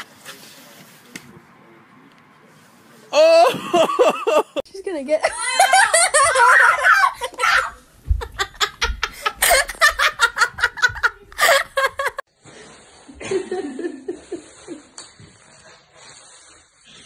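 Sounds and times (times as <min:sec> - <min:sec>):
person laughing hard: 0:03.3 - 0:04.6, 0:05.4 - 0:12.2.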